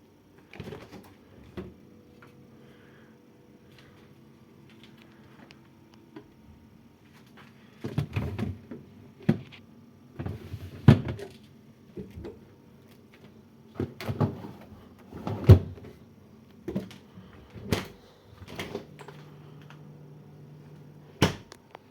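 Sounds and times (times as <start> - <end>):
refrigerator doors and drawers clunking: 13.7 - 16.0, 16.6 - 19.3, 21.2 - 21.6.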